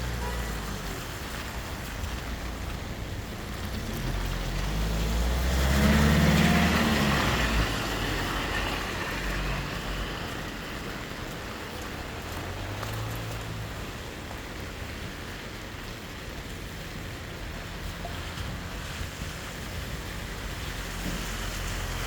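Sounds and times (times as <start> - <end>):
heavy rain hissing: 0.0 - 22.0
vehicle driving past: 3.6 - 10.6.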